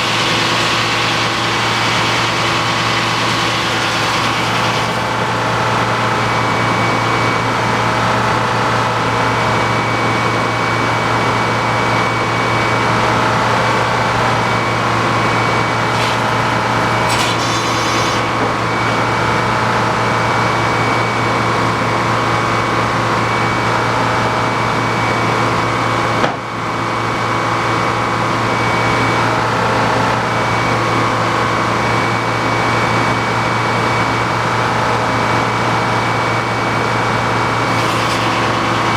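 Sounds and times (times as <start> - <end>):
sawmill sawing a log: 0.0 - 21.4, 36.4 - 38.9.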